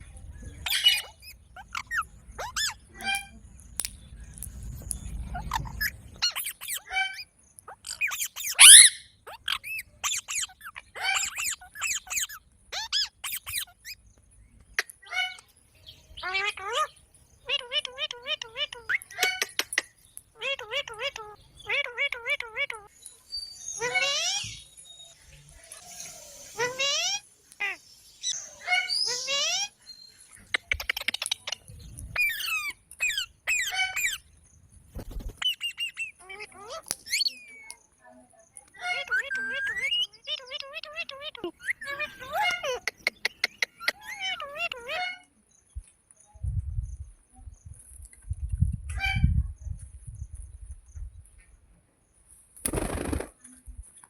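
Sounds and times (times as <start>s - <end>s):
parrot squawking: 0.6s - 3.3s, 5.3s - 14.0s, 20.4s - 22.9s, 32.2s - 34.2s, 38.8s - 45.2s.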